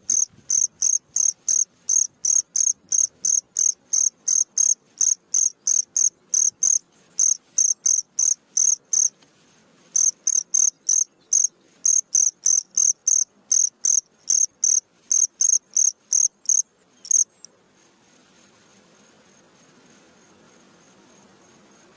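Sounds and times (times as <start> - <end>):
cricket chirping: 0.0 - 9.1, 10.0 - 17.5.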